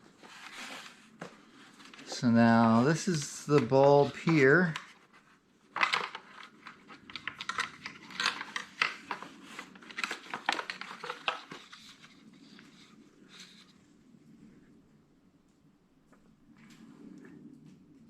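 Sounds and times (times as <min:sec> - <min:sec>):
small plastic clicks and rattles: 0:05.8 - 0:11.9.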